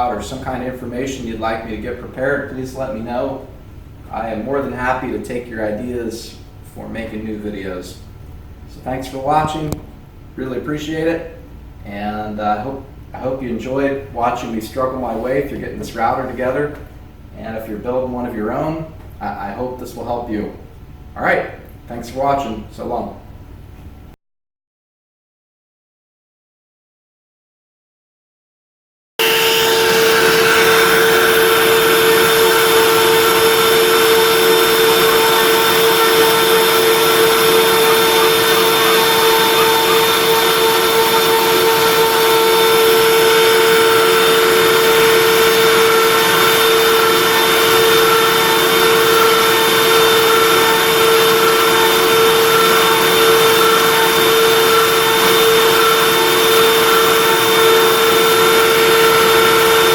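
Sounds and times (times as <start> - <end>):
router spindle whining: 29.2 - 59.9.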